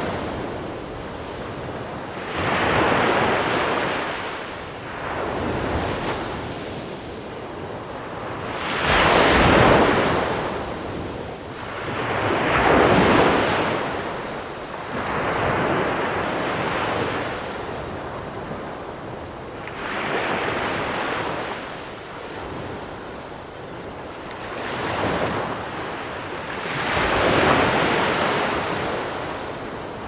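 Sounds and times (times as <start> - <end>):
waves on pebble shore: 8.6 - 10.4, 26.4 - 30.0.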